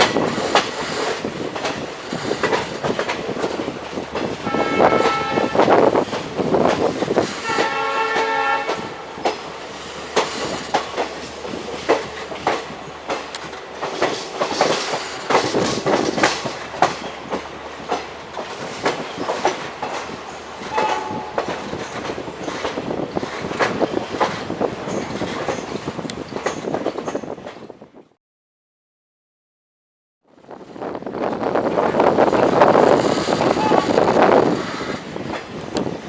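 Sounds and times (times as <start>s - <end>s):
train wheels clattering over rails: 0.0s - 27.8s, 31.2s - 36.0s
train horn: 4.4s - 5.9s, 7.4s - 9.2s, 20.7s - 21.6s, 33.5s - 35.0s.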